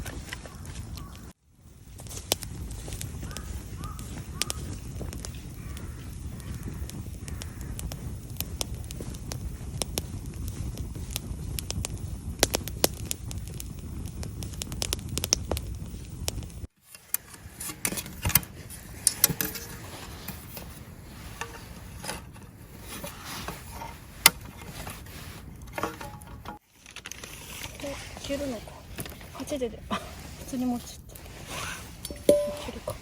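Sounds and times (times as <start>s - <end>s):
campfire crackling: 0.0s - 33.0s
camp cookware clinking: 16.8s - 30.6s, 31.2s - 33.0s.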